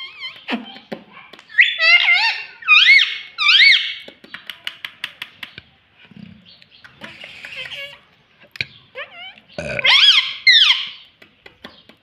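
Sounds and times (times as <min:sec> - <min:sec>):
parrot high squeaky calls: 0:01.5 - 0:04.0, 0:08.9 - 0:11.0.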